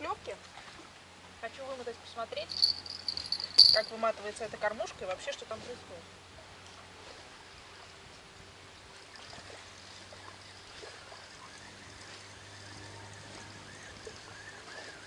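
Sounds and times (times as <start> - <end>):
flowing river water: 2.5 - 3.8, 6.0 - 15.0.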